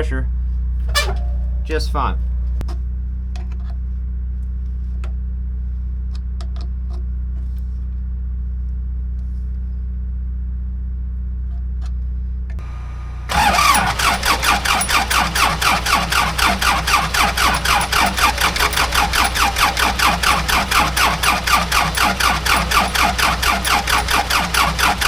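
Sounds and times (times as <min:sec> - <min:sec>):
steady low hum: 0:00.0 - 0:06.1, 0:08.1 - 0:25.0
diesel engine cranking: 0:00.8 - 0:02.6, 0:12.6 - 0:25.0.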